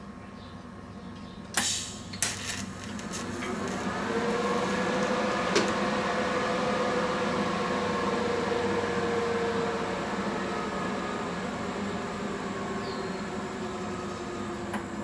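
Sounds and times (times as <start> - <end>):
welder humming and hissing: 1.6 - 5.8.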